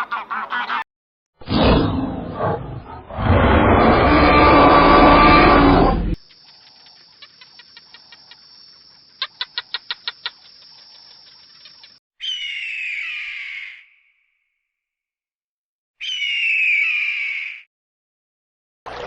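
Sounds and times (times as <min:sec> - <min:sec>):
loud rough animal call: 0:01.4 - 0:06.2.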